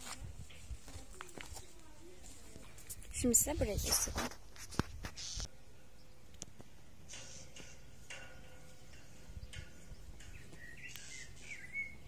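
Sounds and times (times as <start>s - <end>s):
small bird chirping: 9.3s - 12.0s.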